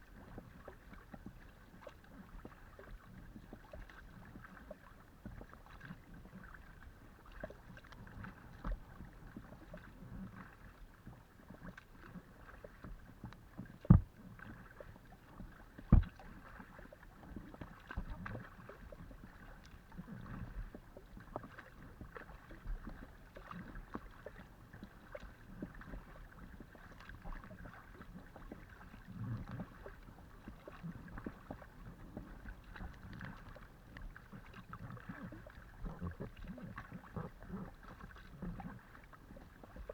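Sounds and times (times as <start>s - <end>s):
water lapping against hull: 0.0s - 39.9s
paddle splashing in water: 0.3s - 39.9s.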